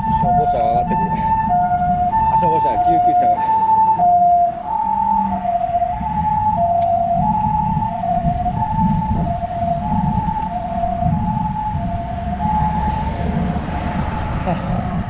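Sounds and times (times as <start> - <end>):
two-tone ambulance siren: 0.0 - 15.0
low rumble: 4.5 - 15.0.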